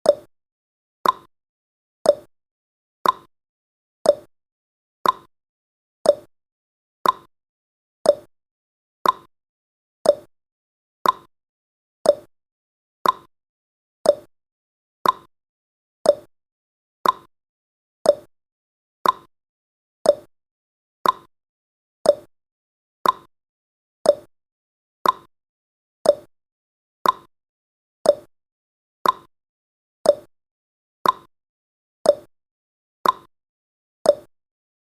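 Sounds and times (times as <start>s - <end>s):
timer ticking: 0.0s - 0.3s, 1.0s - 1.3s, 2.0s - 2.3s, 3.0s - 3.3s, 4.0s - 4.3s, 5.0s - 5.3s, 6.0s - 6.3s, 7.0s - 7.3s, 8.0s - 8.3s, 9.0s - 9.3s, 10.0s - 10.3s, 11.0s - 11.3s, 12.0s - 12.3s, 13.0s - 13.3s, 14.0s - 14.3s, 15.0s - 15.3s, 16.0s - 16.3s, 17.0s - 17.3s, 18.0s - 18.3s, 19.0s - 19.3s, 20.0s - 20.3s, 21.0s - 21.3s, 22.0s - 22.3s, 23.0s - 23.3s, 24.0s - 24.3s, 25.0s - 25.3s, 26.0s - 26.3s, 27.0s - 27.3s, 28.0s - 28.3s, 29.0s - 29.3s, 30.0s - 30.3s, 31.0s - 31.3s, 32.0s - 32.3s, 33.0s - 33.3s, 34.1s - 34.3s.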